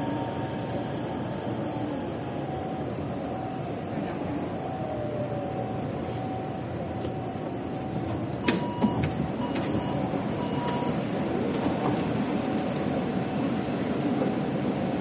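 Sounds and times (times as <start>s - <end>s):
metro train rumbling: 0.0s - 15.0s
electronic door warning beeps: 8.4s - 11.1s.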